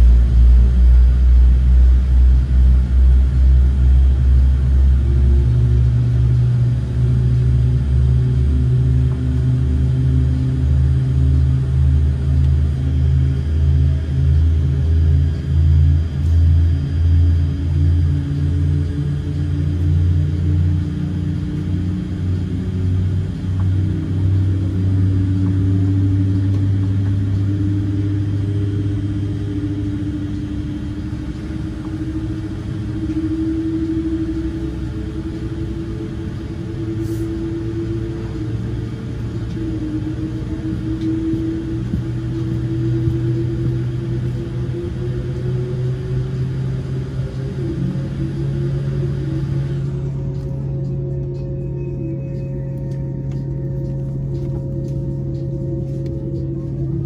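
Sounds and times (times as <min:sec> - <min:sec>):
aircraft engines rumbling: 0:00.0 - 0:57.0
humming tone drifting in pitch: 0:00.0 - 0:57.0.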